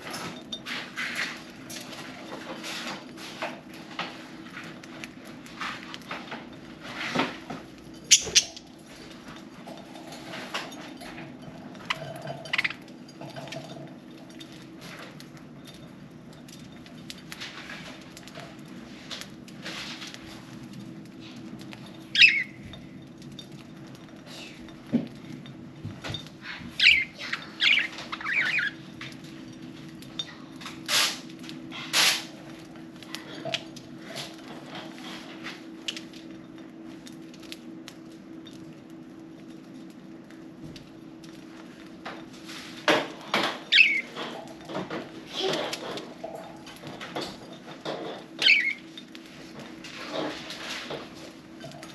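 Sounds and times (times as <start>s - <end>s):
budgerigars chirping: 22.2s - 22.4s.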